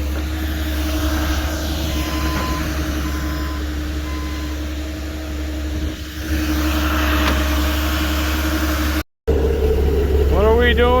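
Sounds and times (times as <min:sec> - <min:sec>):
large engine running: 0:00.0 - 0:11.0
reversing alarm beeping: 0:01.9 - 0:04.7.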